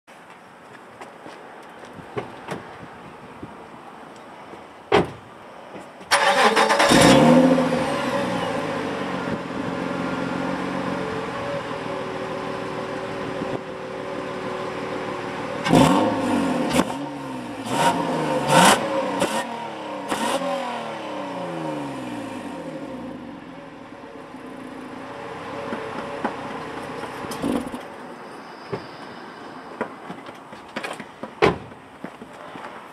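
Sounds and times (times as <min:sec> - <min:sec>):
car engine starting and idling: 0:06.1 - 0:28.0.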